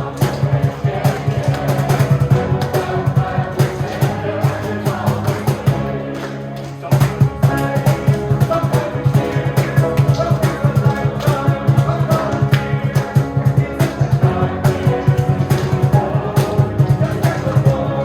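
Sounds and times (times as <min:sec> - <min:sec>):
drums and guitar beat: 0:00.0 - 0:05.9, 0:07.0 - 0:18.0
choir singing: 0:00.0 - 0:18.0.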